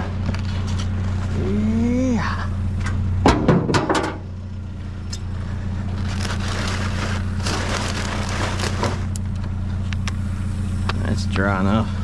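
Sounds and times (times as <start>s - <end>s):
vehicle engine idling: 0.0s - 12.0s
trash rustling and crunching: 5.2s - 9.6s.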